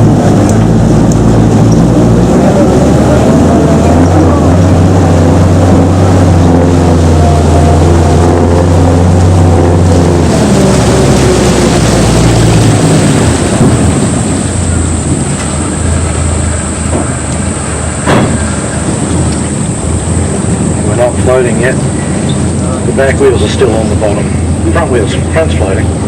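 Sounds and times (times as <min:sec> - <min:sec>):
rough rushing water noise: 0:00.0 - 0:26.0
truck engine droning: 0:00.0 - 0:26.0
sharp knock or splash: 0:18.0 - 0:18.5.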